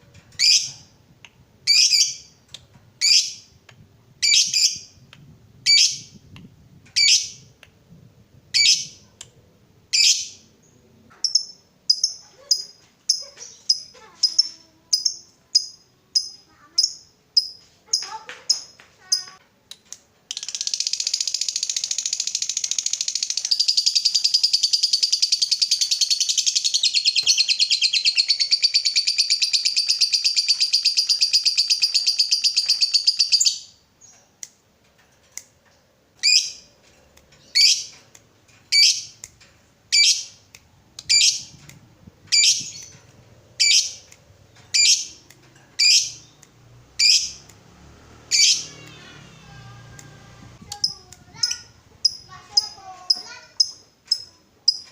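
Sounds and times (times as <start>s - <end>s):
lovebird chattering trill: 20.3s - 34.1s, 37.4s - 37.9s, 38.7s - 39.2s, 39.9s - 40.4s, 41.0s - 41.6s, 42.3s - 44.1s, 44.7s - 45.2s, 45.8s - 46.4s, 47.0s - 47.4s, 50.6s - 54.8s.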